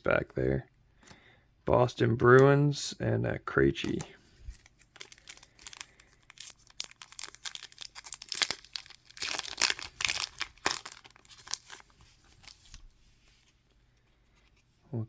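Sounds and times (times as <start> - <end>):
wrapper tearing and crinkling: 4.4 - 12.8.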